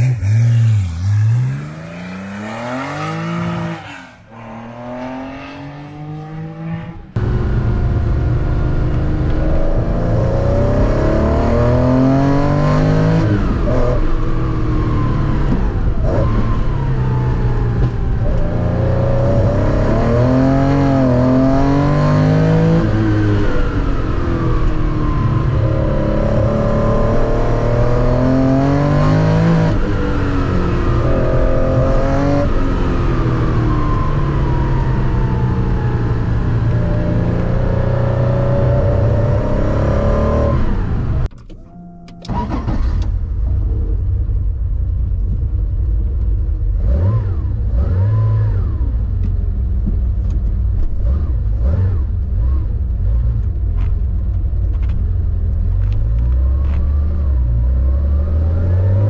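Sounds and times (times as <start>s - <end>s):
car engine revving: 0.0s - 44.4s.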